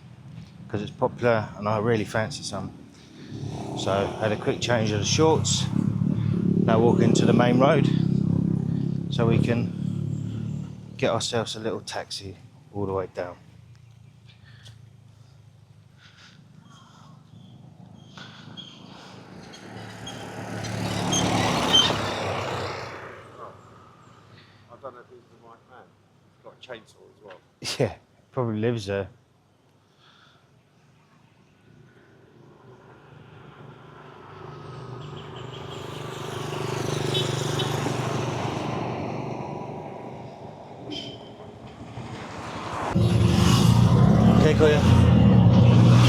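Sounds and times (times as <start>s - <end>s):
vehicle passing by: 2.0s - 11.4s, 17.4s - 24.6s, 32.0s - 46.0s.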